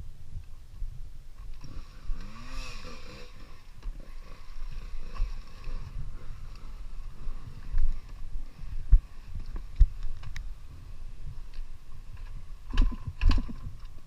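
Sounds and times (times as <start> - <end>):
dirt bike engine revving: 1.6 - 7.7.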